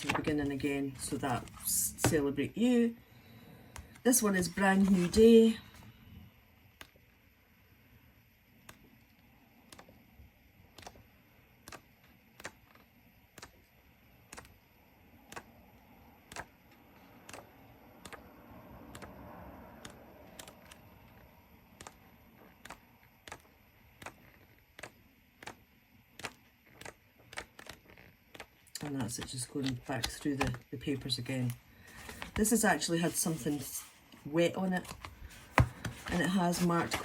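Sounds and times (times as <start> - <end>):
paper pages flicking: 0.0 - 1.7, 11.6 - 14.6, 16.2 - 18.3, 21.7 - 30.6, 34.8 - 37.0
soft paper rustle: 0.0 - 2.1, 3.8 - 5.9, 26.2 - 37.0.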